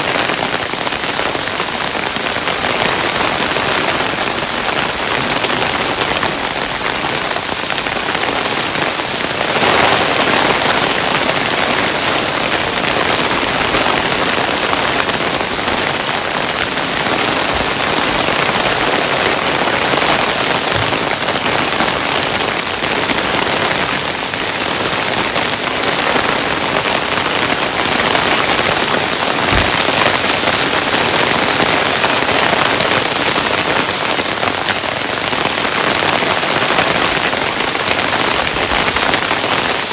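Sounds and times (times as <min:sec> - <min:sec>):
hailstones falling: 0:24.7 - 0:39.9.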